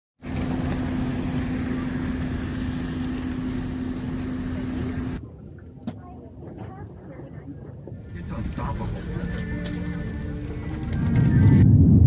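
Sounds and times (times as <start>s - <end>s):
vehicle engine humming: 0.2s - 5.2s, 8.0s - 11.7s.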